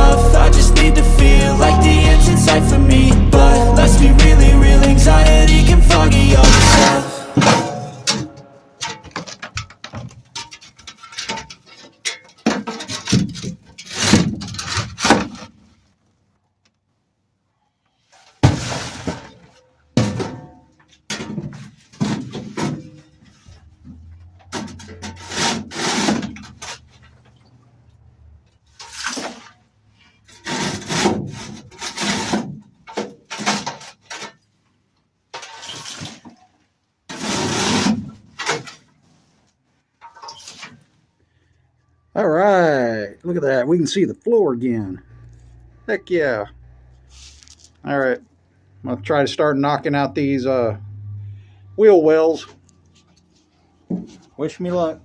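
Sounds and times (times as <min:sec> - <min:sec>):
debris scraping and rustling: 0:05.0 - 0:16.0, 0:18.2 - 0:27.6, 0:28.5 - 0:34.5, 0:35.3 - 0:41.0, 0:47.1 - 0:47.8.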